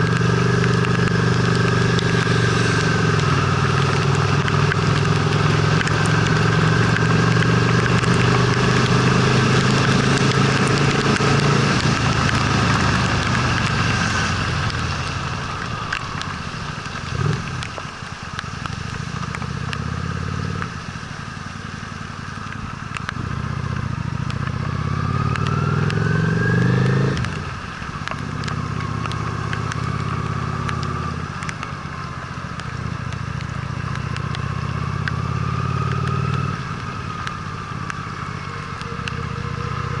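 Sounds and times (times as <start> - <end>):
motorcycle engine revving: 0.0 - 14.7, 23.0 - 31.5, 32.4 - 40.0
wind and road hiss: 0.0 - 40.0.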